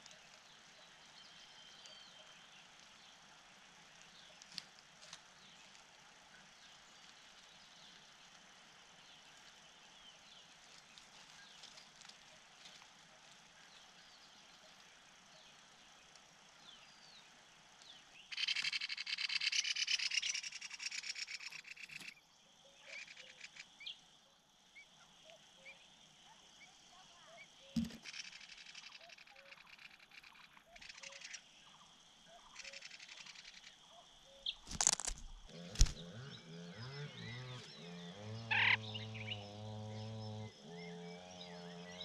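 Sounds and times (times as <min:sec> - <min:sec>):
faint bird chirps: 0:00.0 - 0:03.2, 0:09.1 - 0:42.0
bird rapid rattling trill: 0:18.3 - 0:22.2, 0:27.8 - 0:31.8, 0:32.4 - 0:33.8, 0:38.5 - 0:39.3.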